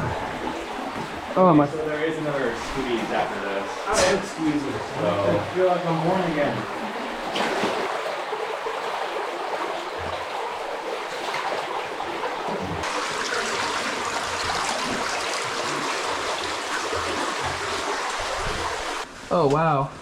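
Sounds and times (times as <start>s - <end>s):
spring water running: 0.0s - 19.8s.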